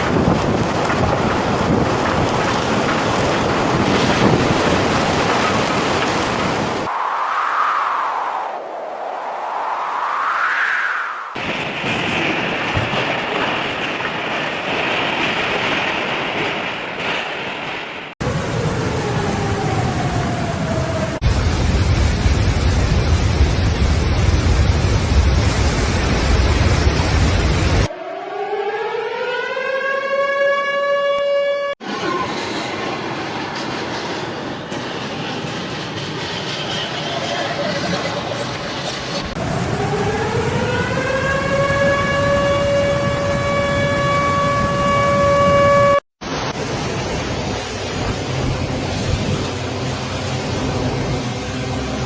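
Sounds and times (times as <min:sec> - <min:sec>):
rushing water: 0:00.0 - 0:08.2, 0:11.4 - 0:27.9, 0:46.2 - 0:52.0
wind buffeting microphone: 0:00.0 - 0:17.2, 0:39.2 - 0:51.5
whooshing wind: 0:00.0 - 0:30.8, 0:31.7 - 0:52.0.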